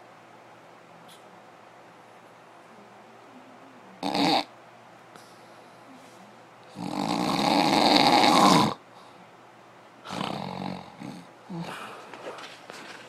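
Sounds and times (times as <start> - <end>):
rasping snore-like noises: 4.0 - 4.5, 6.7 - 8.8, 10.1 - 11.8.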